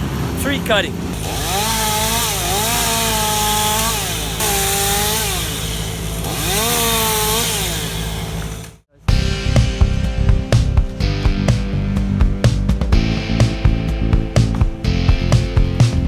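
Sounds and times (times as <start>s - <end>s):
chainsaw cutting at high revs: 1.1s - 9.7s
guitar music: 9.1s - 16.0s.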